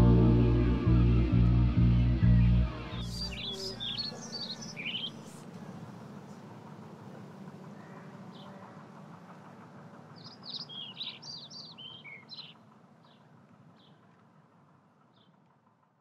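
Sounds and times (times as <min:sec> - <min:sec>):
faint low hum: 0:00.0 - 0:09.7
bird chirping: 0:02.4 - 0:05.4, 0:10.2 - 0:13.2.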